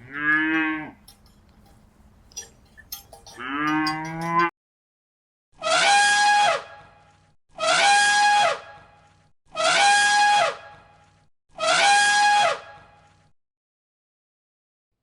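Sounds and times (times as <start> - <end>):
harsh trumpet-like animal call: 5.6 - 6.7, 7.5 - 8.8, 9.5 - 10.7, 11.6 - 12.9.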